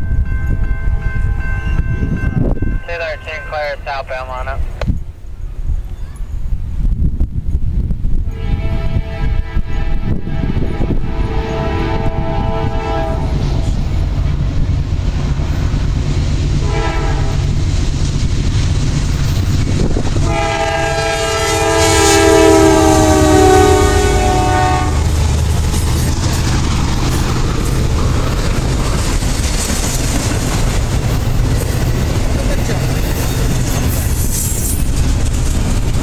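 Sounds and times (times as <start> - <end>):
locomotive horn blasts: 8.3 - 13.6, 16.6 - 17.4, 20.2 - 25.2
locomotives rumbling: 10.5 - 36.0
train wheels clattering: 25.0 - 36.0.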